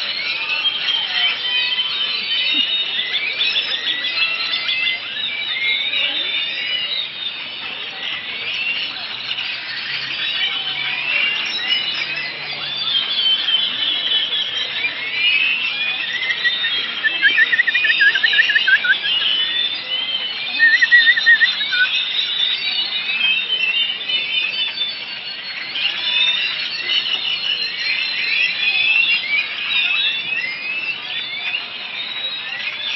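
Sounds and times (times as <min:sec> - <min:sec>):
songbirds chorus: 0:00.0 - 0:32.9
rapid wavering bird trill: 0:11.1 - 0:22.8.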